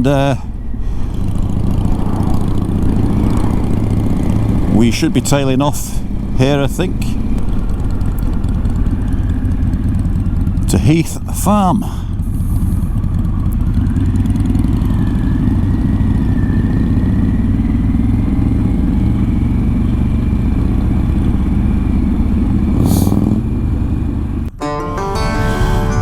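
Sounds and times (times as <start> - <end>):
motorcycle engine cruising: 0.0 - 26.0
wind rush on microphone: 0.7 - 4.7.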